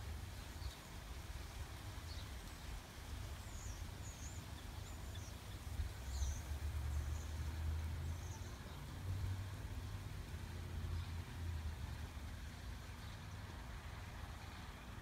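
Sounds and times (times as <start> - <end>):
small birds chirping: 0.3 - 9.0.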